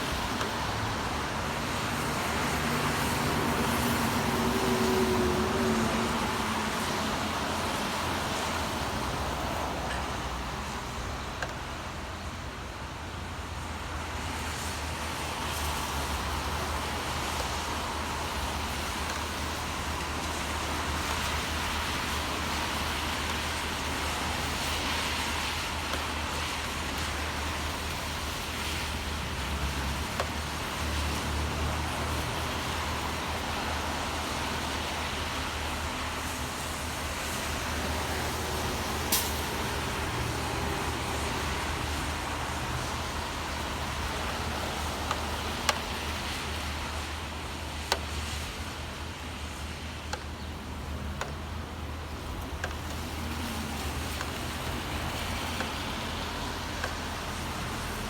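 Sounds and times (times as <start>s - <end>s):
rain hissing: 0.0s - 12.4s, 14.2s - 58.0s
traffic engine rumble: 0.0s - 58.0s
tyres on wet road: 0.0s - 58.0s.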